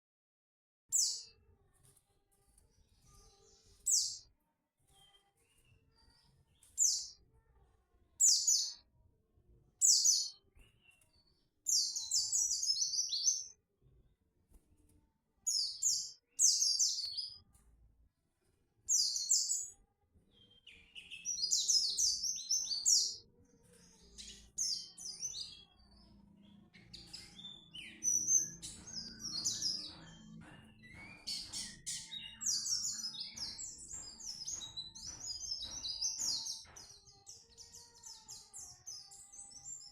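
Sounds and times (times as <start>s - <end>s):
white-eye bird singing: 3.8s - 4.2s, 6.6s - 7.2s, 8.2s - 8.8s, 9.8s - 11.0s, 11.7s - 13.6s, 15.5s - 17.4s, 18.9s - 19.8s, 20.4s - 23.2s, 24.0s - 39.9s.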